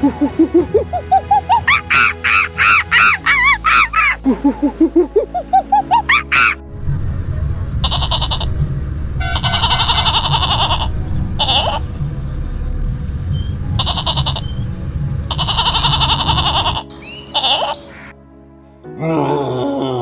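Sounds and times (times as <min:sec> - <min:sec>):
rumble of moving herd: 0:06.6 - 0:16.9
brief animal call: 0:07.8 - 0:08.5, 0:15.3 - 0:18.1
goats bleating: 0:07.8 - 0:08.6, 0:09.2 - 0:11.8, 0:13.8 - 0:14.6, 0:15.3 - 0:17.9.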